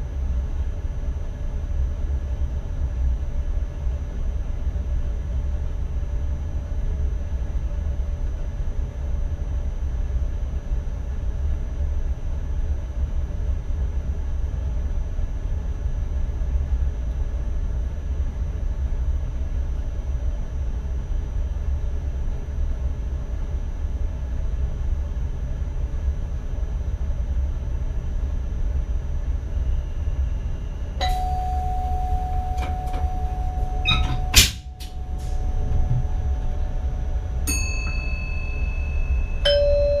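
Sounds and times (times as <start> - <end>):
electric train rumbling: 27.4 - 40.0
steady electronic tone: 31.0 - 40.0
clicks: 32.2 - 36.1.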